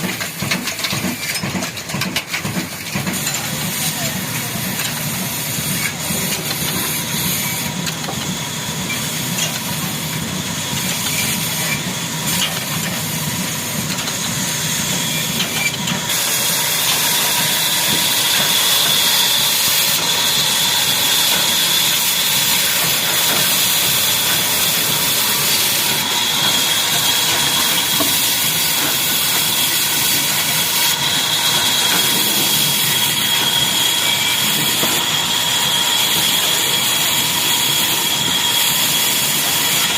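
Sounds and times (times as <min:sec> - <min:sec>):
diesel engine running: 0:00.0 - 0:39.9
high whine: 0:13.8 - 0:39.9.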